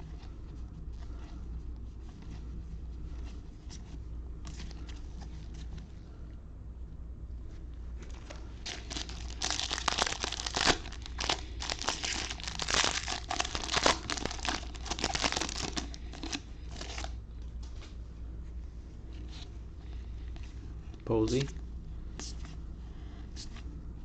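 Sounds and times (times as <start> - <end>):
foil wrapper tearing and crinkling: 8.6 - 17.1.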